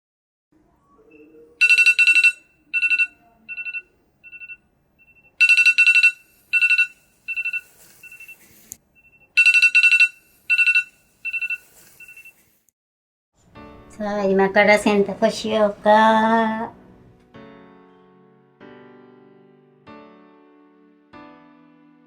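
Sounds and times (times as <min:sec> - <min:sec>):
trilling telephone ring: 0:01.1 - 0:08.4, 0:09.0 - 0:12.4.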